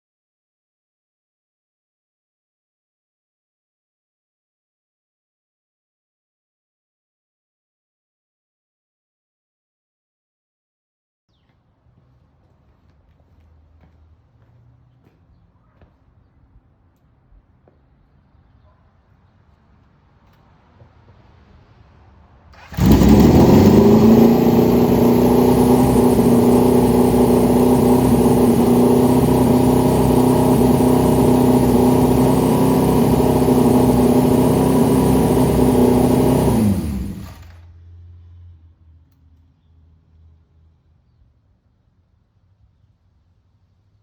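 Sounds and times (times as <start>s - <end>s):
motorcycle engine idling: 22.6s - 37.6s.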